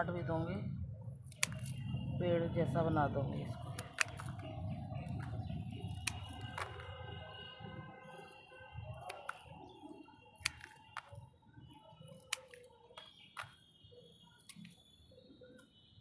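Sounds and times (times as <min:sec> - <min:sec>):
scissors snipping stems: 0:01.2 - 0:01.8, 0:03.4 - 0:07.0, 0:08.2 - 0:11.3, 0:11.9 - 0:13.6, 0:14.4 - 0:14.8.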